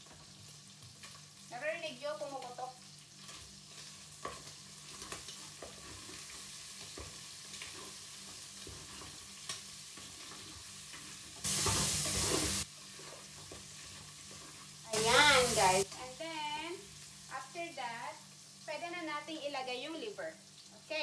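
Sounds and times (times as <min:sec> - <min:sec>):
food sizzling in oil: 0:00.0 - 0:21.0.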